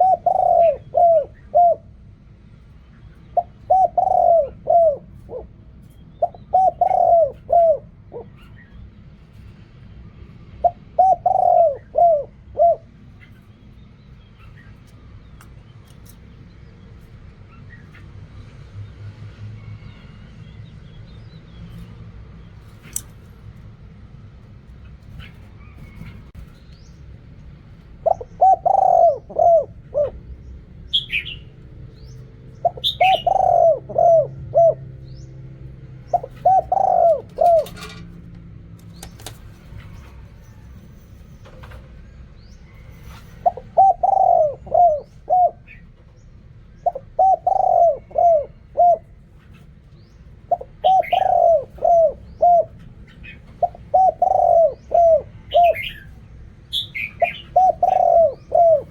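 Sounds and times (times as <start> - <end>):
dove cooing: 0.0 - 2.1, 3.3 - 8.9, 10.6 - 13.4, 27.8 - 40.6, 42.7 - 58.9
low background hum: 0.0 - 58.9.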